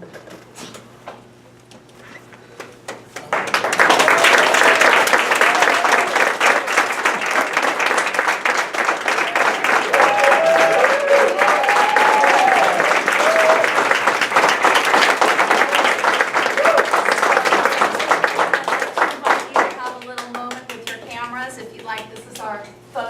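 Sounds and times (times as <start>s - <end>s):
audience applauding: 2.6s - 21.0s
voices calling out and cheering: 9.1s - 13.8s.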